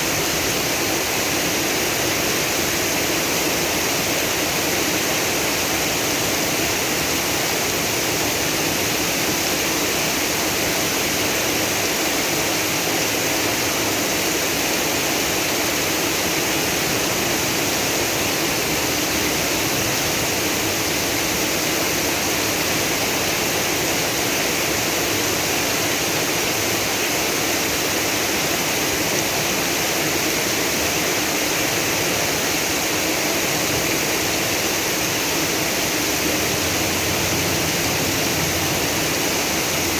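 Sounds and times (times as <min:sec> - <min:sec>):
heavy rain: 0:00.0 - 0:39.9
rushing floodwater: 0:00.0 - 0:39.9.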